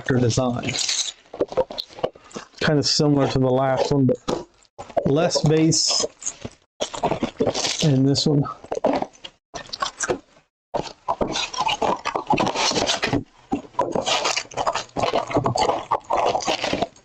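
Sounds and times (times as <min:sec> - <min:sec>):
cardboard and wrappers rustling: 0:00.0 - 0:10.2, 0:10.8 - 0:17.0.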